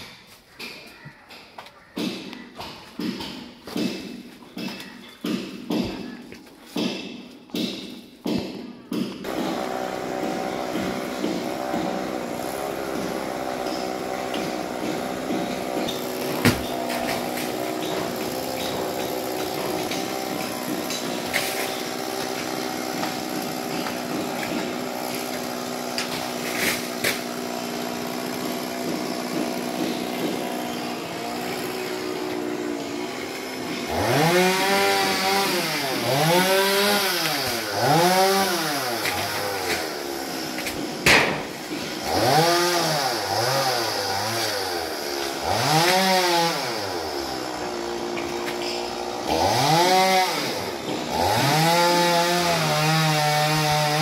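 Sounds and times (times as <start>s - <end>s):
chainsaw revving: 9.2s - 54.0s
sharp knock: 41.1s - 41.5s.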